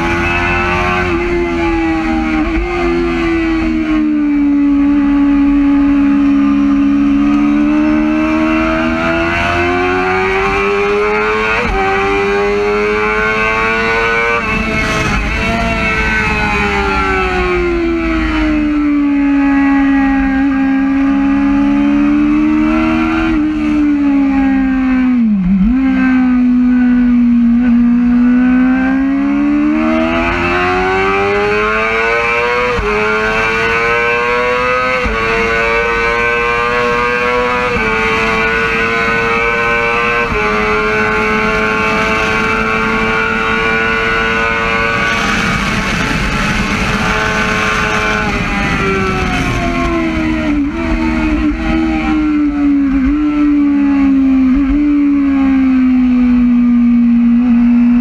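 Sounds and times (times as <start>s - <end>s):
motorcycle engine at high revs: 0.0s - 58.0s
wind rush: 8.8s - 19.3s, 37.6s - 53.6s.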